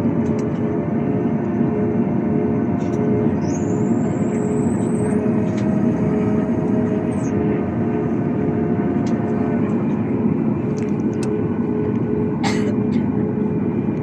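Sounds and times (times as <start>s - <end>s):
high whine: 0.0s - 14.0s
jet airliner engine running: 0.0s - 14.0s.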